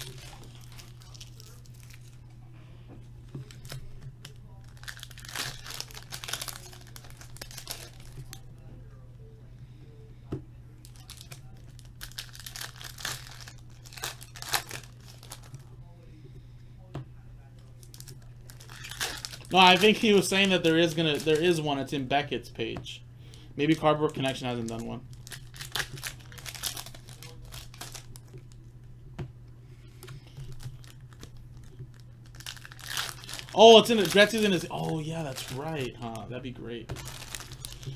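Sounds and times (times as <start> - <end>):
card pack wrappers crinkling and tearing: 0.0 - 2.3, 3.2 - 8.4, 10.8 - 15.7, 17.8 - 22.1, 23.6 - 28.6, 29.9 - 37.9.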